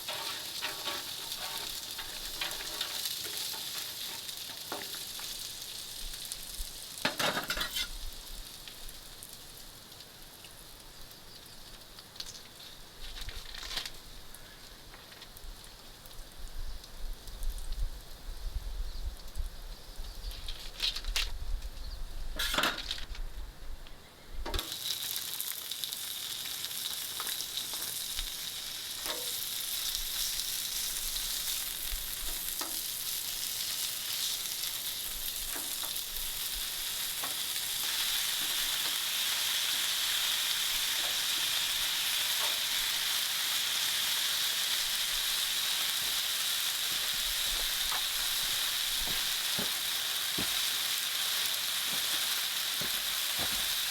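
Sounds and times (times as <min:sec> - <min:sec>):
heavy rain hissing: 0:00.0 - 0:07.0, 0:24.6 - 0:53.9.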